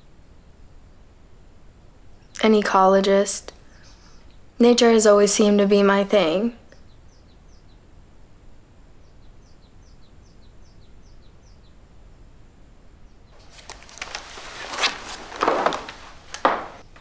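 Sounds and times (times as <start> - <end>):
small bird chirping: 3.6 - 5.0, 6.3 - 8.0, 8.8 - 12.2
rustling and handling noise: 13.4 - 17.0.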